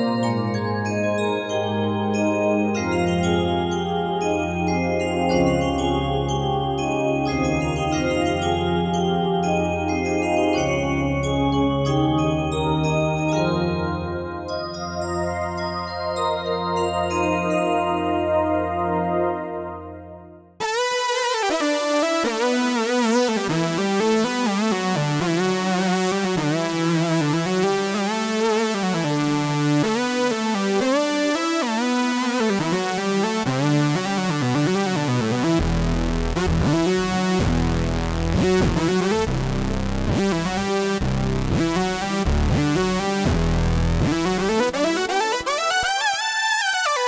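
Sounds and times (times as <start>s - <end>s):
synthesizer melody with gliding pitches: 17.4s - 47.0s
deep synth bass: 32.4s - 45.9s.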